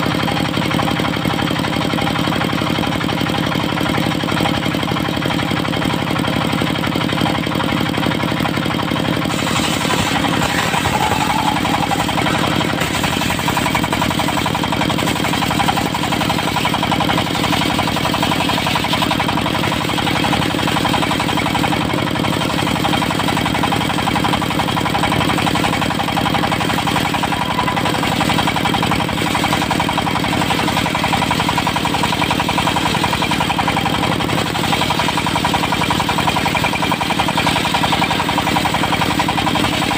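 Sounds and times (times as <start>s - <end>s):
diesel engine running: 0.0s - 39.9s
circular saw cutting wood: 9.1s - 20.8s, 25.0s - 36.4s.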